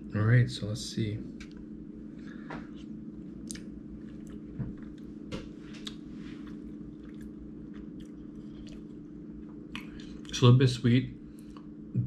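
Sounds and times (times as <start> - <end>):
steady low hum: 0.0 - 12.0
close-up chewing: 2.7 - 5.2, 5.8 - 10.4
mouth clicks and smacks: 3.4 - 5.1.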